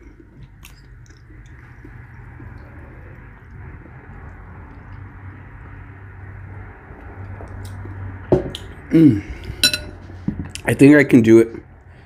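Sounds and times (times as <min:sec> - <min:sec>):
low background hum: 0:00.0 - 0:12.0
short falling vocal sounds: 0:08.9 - 0:09.4.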